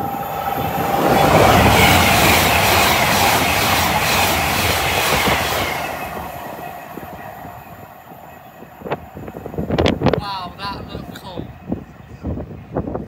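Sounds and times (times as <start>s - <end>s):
train rushing past: 0.0s - 13.0s.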